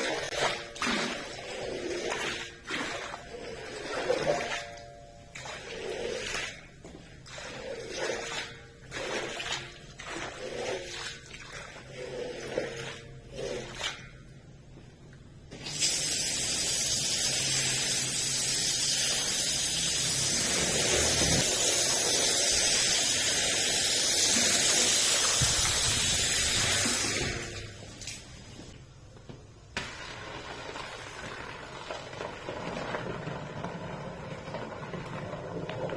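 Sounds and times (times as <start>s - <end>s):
water spraying hiss: 15.7s - 27.5s.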